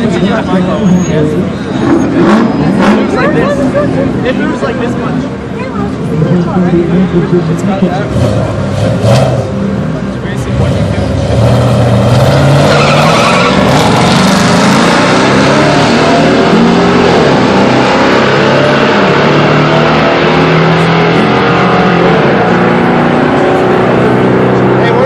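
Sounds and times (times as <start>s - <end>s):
truck engine accelerating: 0.0s - 25.0s.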